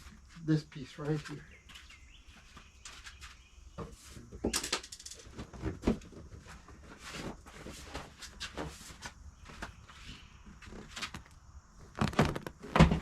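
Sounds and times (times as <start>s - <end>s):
upholstery fabric rustling: 9.7s - 13.0s.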